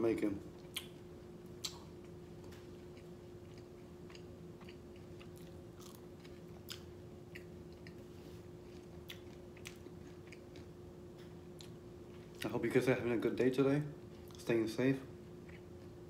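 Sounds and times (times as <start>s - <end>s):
faint steady hum: 0.0s - 16.0s
chewing mouth clicks and smacks: 0.6s - 1.0s, 1.6s - 8.0s, 8.7s - 11.8s.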